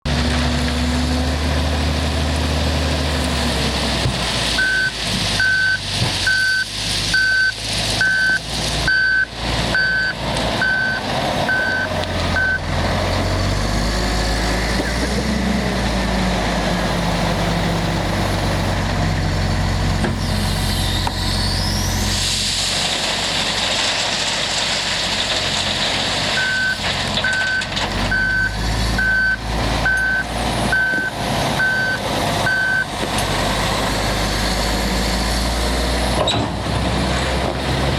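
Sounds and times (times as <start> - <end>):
diesel engine working under load: 0.0 - 37.9
reversing alarm beeping: 4.6 - 12.7, 26.4 - 32.9.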